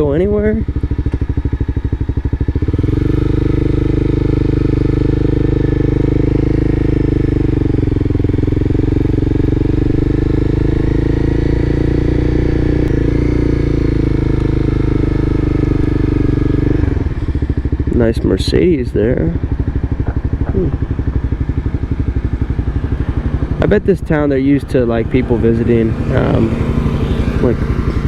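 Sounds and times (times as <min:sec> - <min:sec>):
car engine and exhaust droning: 0:00.0 - 0:28.0.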